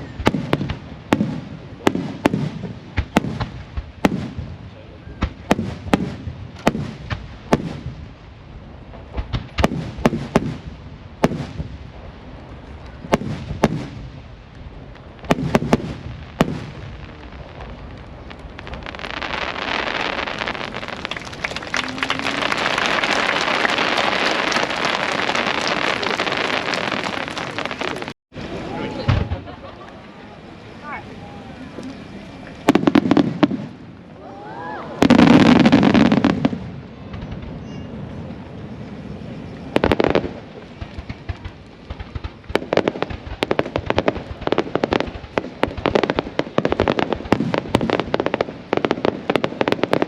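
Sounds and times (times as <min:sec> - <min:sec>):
fireworks bangs: 0:00.0 - 0:50.0
dense crackling: 0:08.8 - 0:30.0.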